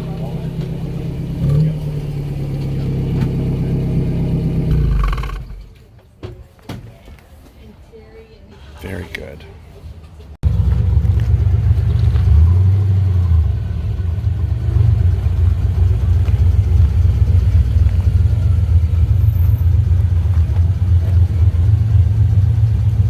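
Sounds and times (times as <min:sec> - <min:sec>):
car engine running: 0:00.0 - 0:05.8, 0:10.4 - 0:23.0.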